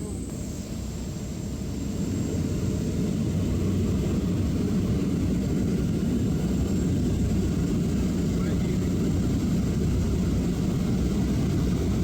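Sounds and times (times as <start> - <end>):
propeller airplane engine droning: 0.0 - 12.0.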